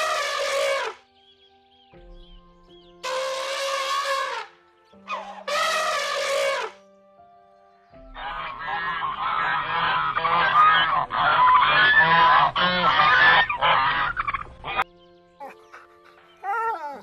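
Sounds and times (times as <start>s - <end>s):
geese honking: 0.0s - 1.0s, 3.0s - 4.5s, 5.1s - 6.8s, 8.1s - 14.8s.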